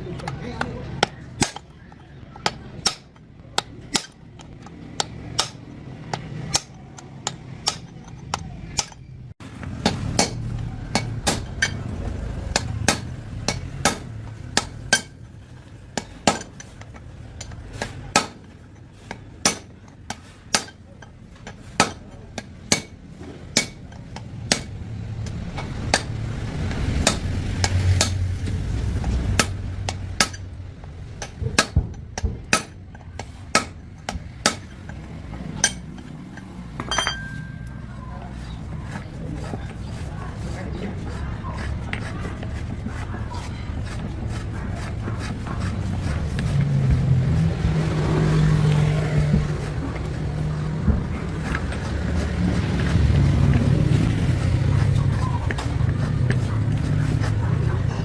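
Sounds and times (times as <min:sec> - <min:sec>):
hammer tapping on metal: 0:02.4 - 0:09.1, 0:12.5 - 0:15.2, 0:15.9 - 0:28.2, 0:31.2 - 0:37.8.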